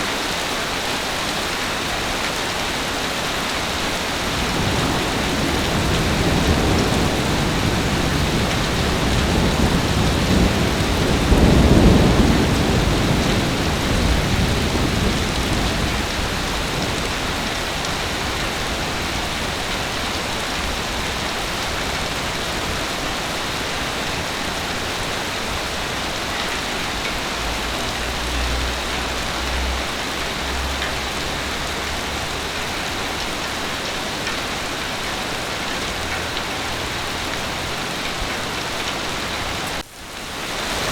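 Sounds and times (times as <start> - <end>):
heavy rain: 0.0 - 40.9
thunder rumbling: 3.8 - 32.5.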